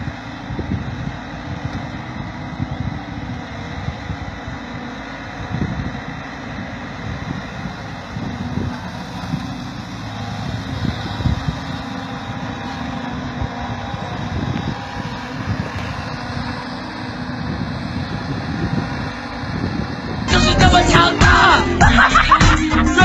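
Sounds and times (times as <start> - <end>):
heavy engine rumbling: 0.0 - 23.0.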